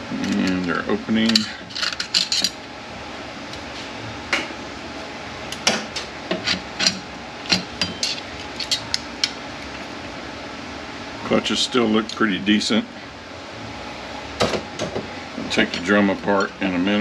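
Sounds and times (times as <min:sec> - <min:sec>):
steady background hum: 0:00.0 - 0:17.0
metal parts clinking: 0:00.2 - 0:02.6, 0:06.4 - 0:09.3.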